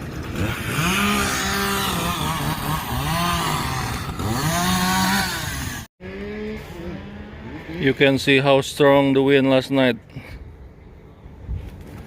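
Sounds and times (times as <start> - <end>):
chainsaw revving and cutting wood: 0.0 - 8.0.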